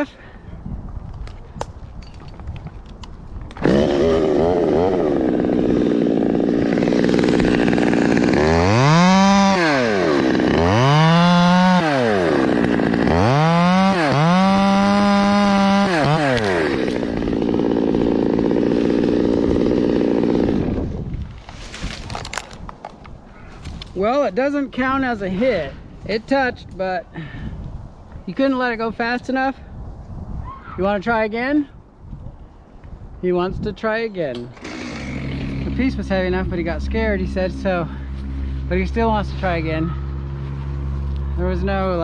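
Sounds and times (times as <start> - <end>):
chainsaw idling and revving: 3.6 - 20.9, 34.4 - 42.0.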